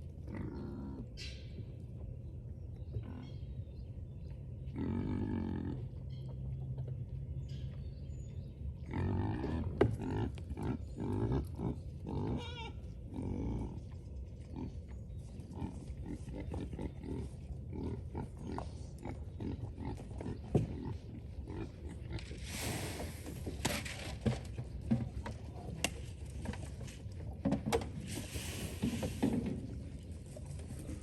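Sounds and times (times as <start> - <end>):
pigs grunting: 0.2 - 1.2, 4.7 - 6.1, 8.8 - 25.9
short rushing hiss: 22.5 - 23.3, 28.2 - 29.2.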